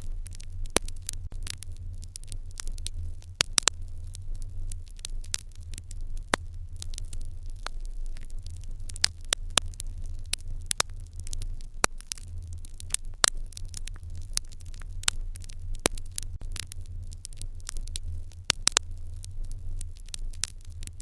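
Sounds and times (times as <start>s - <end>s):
steady low rumble: 0.0s - 21.0s
wood fire crackling: 0.0s - 21.0s
sharp pops of fire: 0.2s - 3.9s.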